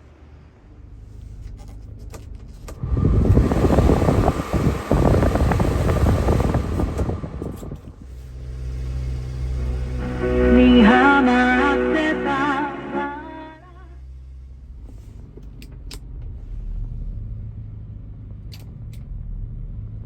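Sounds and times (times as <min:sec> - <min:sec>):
truck engine hum: 0:00.0 - 0:19.7
loud rough engine noise: 0:02.7 - 0:14.9.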